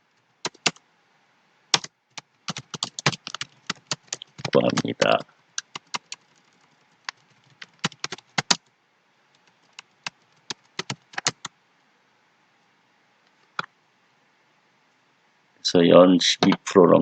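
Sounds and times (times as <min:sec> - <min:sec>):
computer keyboard typing: 0:00.4 - 0:00.8, 0:01.8 - 0:08.6, 0:09.3 - 0:11.5.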